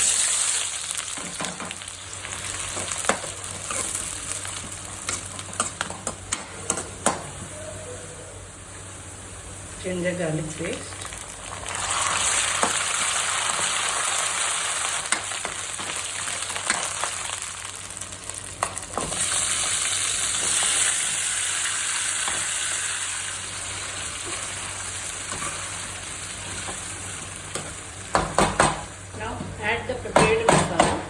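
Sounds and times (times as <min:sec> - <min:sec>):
food sizzling in a pan: 0:00.0 - 0:31.0.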